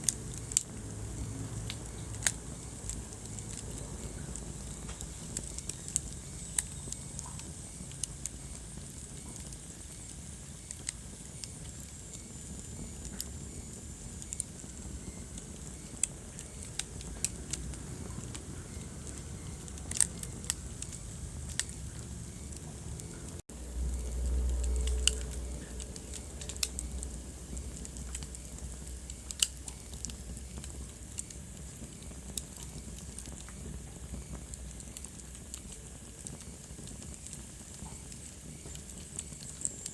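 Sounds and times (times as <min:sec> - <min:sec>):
wood fire crackling: 0:00.0 - 0:39.9
low rumble: 0:16.9 - 0:30.9.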